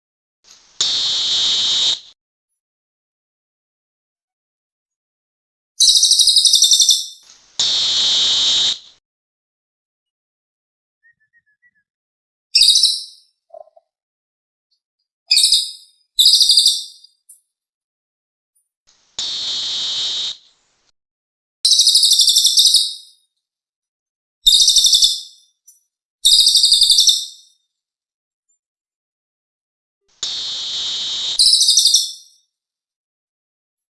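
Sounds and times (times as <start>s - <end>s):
harsh hissing bird call: 0.6s - 2.2s, 7.5s - 9.0s, 19.0s - 20.6s, 30.1s - 32.2s.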